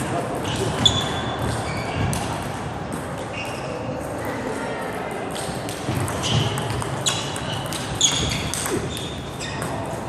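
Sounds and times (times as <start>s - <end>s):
table tennis ball striking bats: 5.3s - 10.0s.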